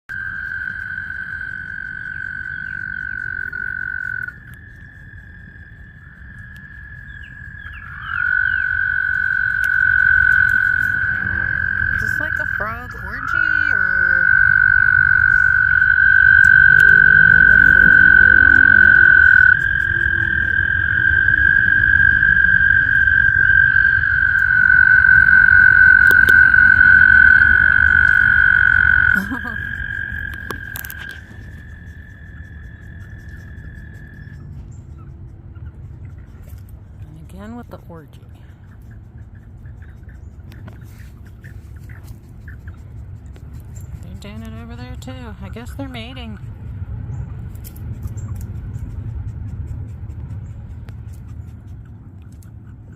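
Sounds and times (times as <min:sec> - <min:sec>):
frogs trilling: 0:00.0 - 0:48.5
low rumble: 0:00.0 - 0:52.9
short frog chirps: 0:00.1 - 0:34.4.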